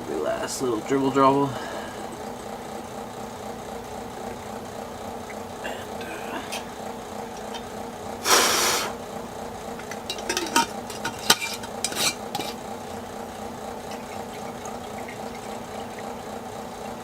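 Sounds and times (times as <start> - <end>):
liquid sloshing: 9.4 - 17.0.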